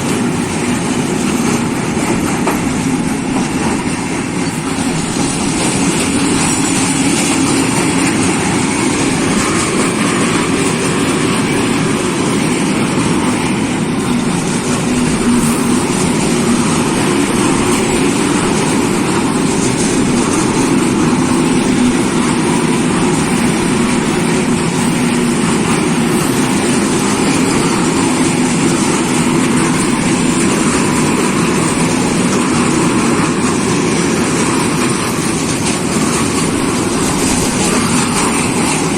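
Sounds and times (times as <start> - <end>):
diesel train running: 0.0 - 38.9.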